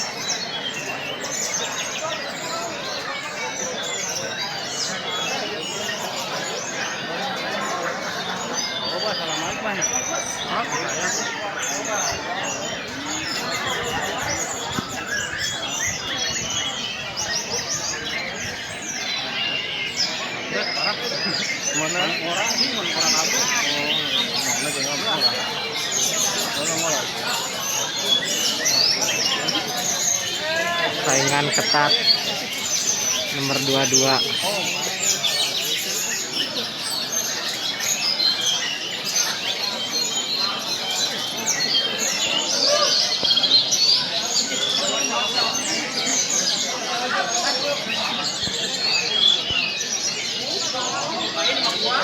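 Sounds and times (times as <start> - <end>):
songbirds chirping and trilling: 0.0 - 52.0.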